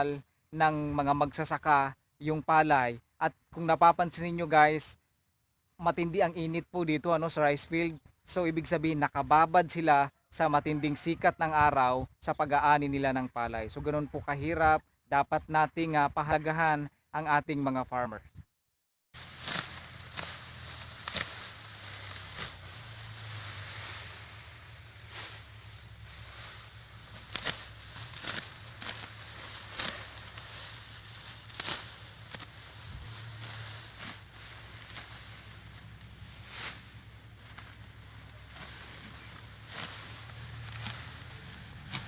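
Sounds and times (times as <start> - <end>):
sickles cutting rice stalks: 19.2 - 42.0.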